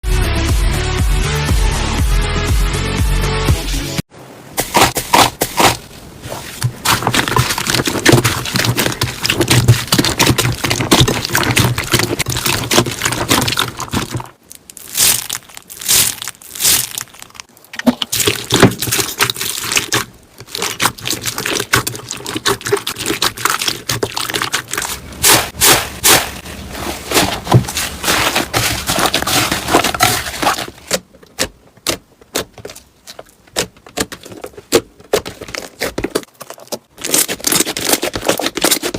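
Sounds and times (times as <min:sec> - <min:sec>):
slime squeezed with sticky crackles: 0:06.8 - 0:26.3.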